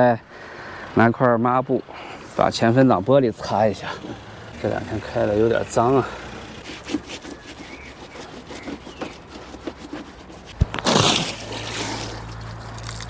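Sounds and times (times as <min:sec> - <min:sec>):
rag rubbing on windshield: 0:06.6 - 0:13.0.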